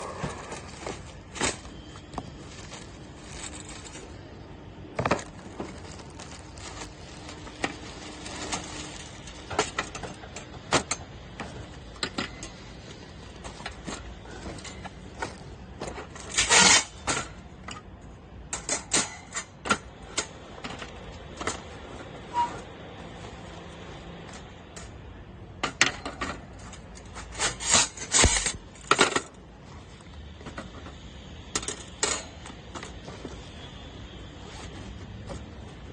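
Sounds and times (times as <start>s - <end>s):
metal parts clicking and clanking: 0.0s - 4.2s, 5.0s - 17.9s, 18.5s - 22.7s, 25.6s - 29.4s, 30.4s - 33.4s.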